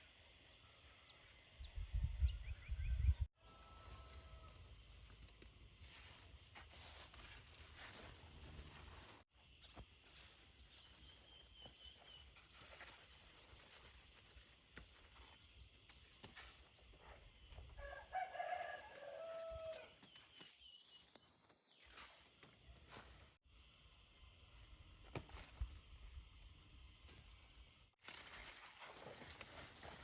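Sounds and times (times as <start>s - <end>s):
faint rooster crowing: 3.4s - 4.8s, 17.7s - 20.0s.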